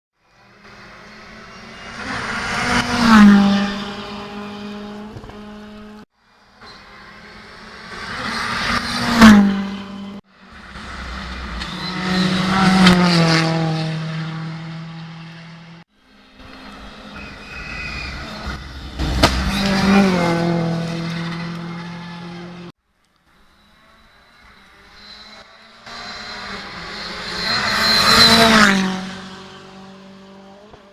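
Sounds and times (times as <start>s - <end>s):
rally car engine passing: 0.2s - 22.7s, 23.3s - 30.9s
sharp crack: 19.0s - 19.8s.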